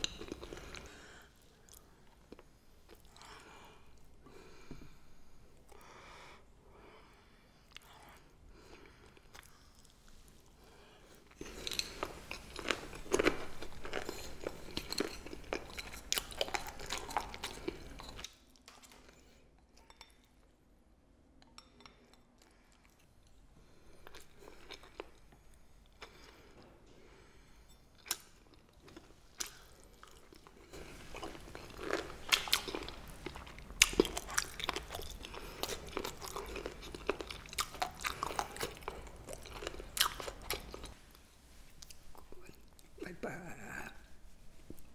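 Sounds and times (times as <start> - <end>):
crunchy chewing: 28.0 - 41.0.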